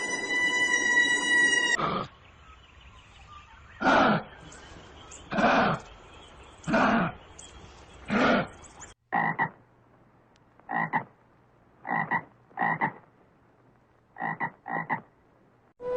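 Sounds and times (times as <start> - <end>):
frog croaking: 9.1 - 9.6, 10.7 - 11.2, 11.8 - 13.1, 14.2 - 15.1.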